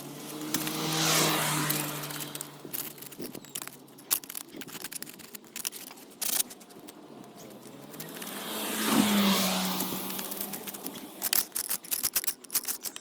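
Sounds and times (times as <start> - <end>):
car passing by: 0.0 - 2.5, 7.6 - 11.0
small clicks and scrapes: 0.0 - 13.0.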